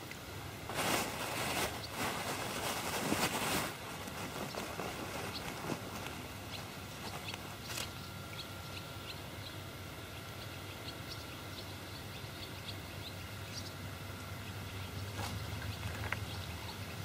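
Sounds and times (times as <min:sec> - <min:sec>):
outdoor background hiss: 0:00.0 - 0:17.0
faint bird chirps: 0:06.4 - 0:17.0.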